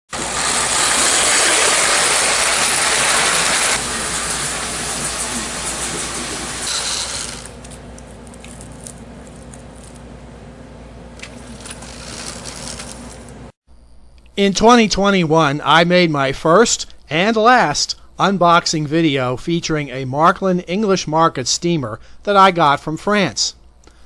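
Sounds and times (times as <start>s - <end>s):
toy train whirring on track: 0.2s - 7.7s, 11.6s - 13.1s.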